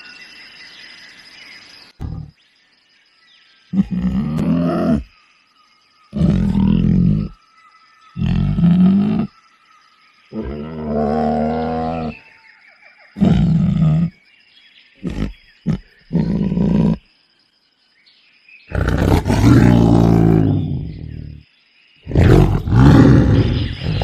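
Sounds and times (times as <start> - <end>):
animal grunts: 2.0 - 2.3, 3.7 - 5.1, 6.1 - 7.4, 8.1 - 9.4, 10.3 - 12.3, 13.2 - 14.2, 15.0 - 17.1, 18.7 - 21.4, 22.0 - 24.0
large animal roaring: 2.0 - 2.3, 3.8 - 5.1, 6.1 - 7.4, 8.2 - 9.3, 10.3 - 12.2, 13.2 - 14.2, 15.0 - 17.0, 18.7 - 21.3, 22.1 - 24.0.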